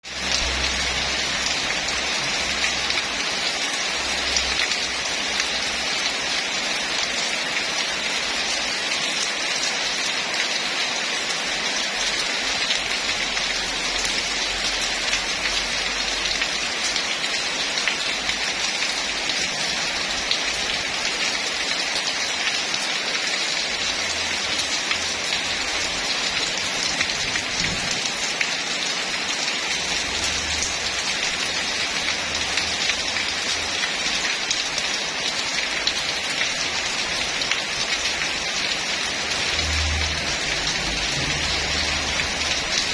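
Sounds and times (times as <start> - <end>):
heavy rain falling: 0.0 - 42.9.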